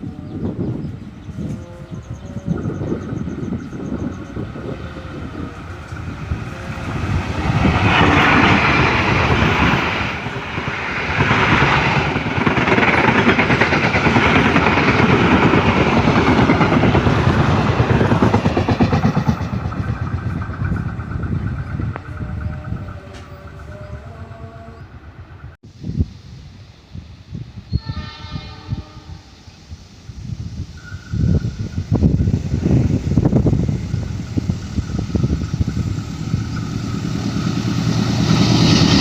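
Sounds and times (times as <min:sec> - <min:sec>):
train wheels clattering on rails: 0:06.8 - 0:24.0.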